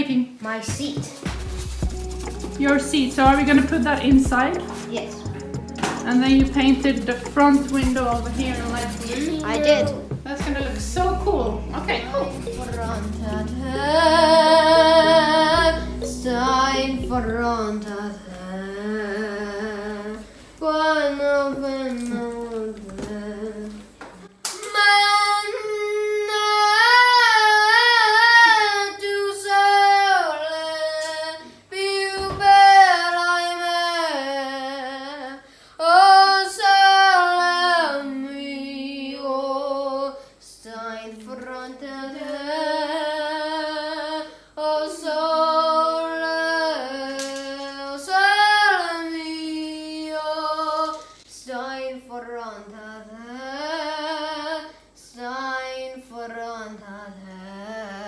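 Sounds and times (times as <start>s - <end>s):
high voice singing slow melody: 11.6s - 23.9s.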